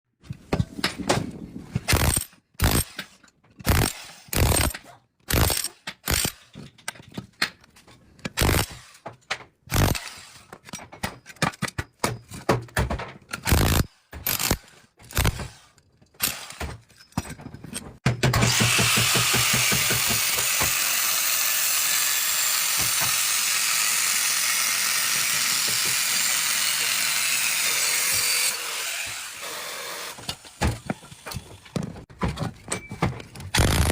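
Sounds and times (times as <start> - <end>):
sharp metal knocks: 16.2 - 20.8
power tool running: 18.4 - 31.4, 33.6 - 33.9.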